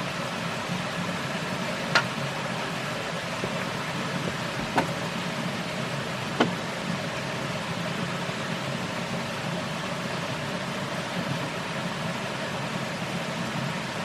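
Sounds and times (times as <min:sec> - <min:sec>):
sharp knocks: 0:06.4 - 0:06.6.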